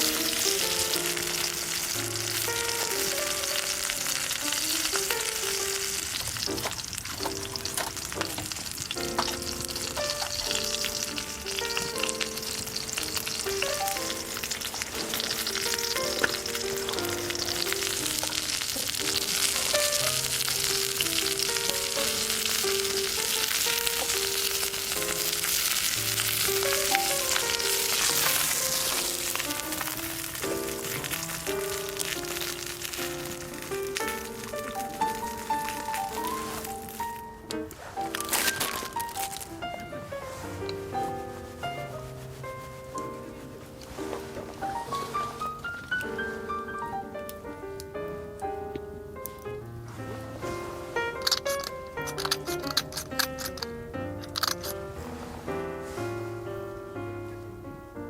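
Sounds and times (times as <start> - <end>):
food sizzling in a pan: 0.0 - 40.6, 41.6 - 46.6
background music: 0.0 - 58.0.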